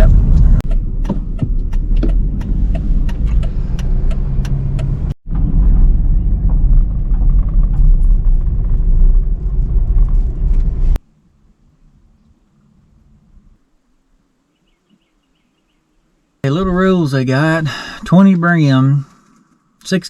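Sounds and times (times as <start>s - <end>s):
road and engine rumble in car: 0.0s - 11.0s.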